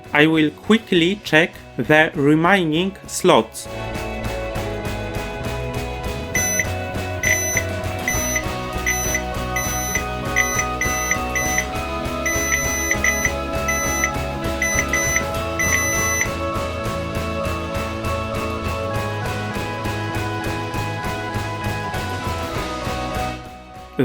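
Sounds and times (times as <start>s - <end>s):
background music: 0.0s - 24.0s
multimeter buzzer beeps: 6.4s - 16.3s.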